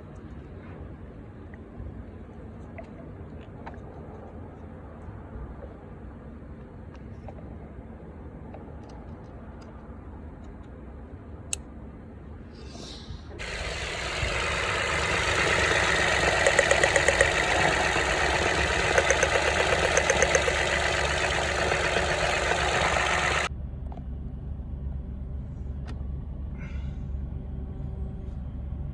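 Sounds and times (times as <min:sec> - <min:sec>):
car engine idling: 0:13.4 - 0:23.5.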